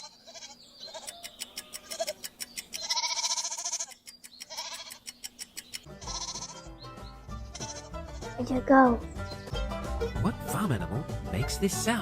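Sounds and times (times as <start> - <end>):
goat bleating: 0.0 - 5.0, 5.9 - 6.8, 7.4 - 8.4.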